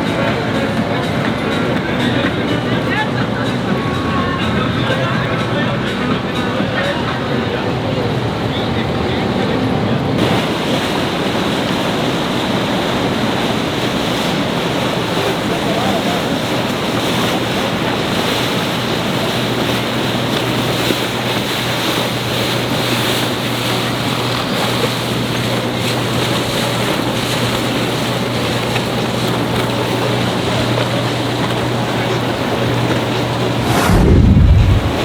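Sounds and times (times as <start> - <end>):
boat engine humming: 0.0 - 33.6
moving water: 0.0 - 35.0
wind on microphone: 33.5 - 35.0.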